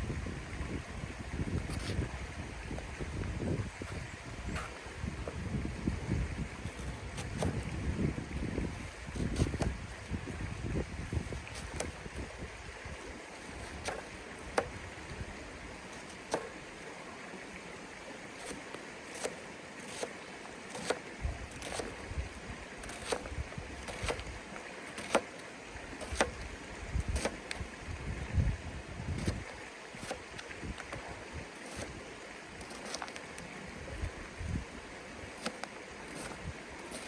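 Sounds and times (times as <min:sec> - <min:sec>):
wind rumble on microphone: 0:00.0 - 0:15.7, 0:21.2 - 0:24.4, 0:25.8 - 0:32.0, 0:33.7 - 0:35.4.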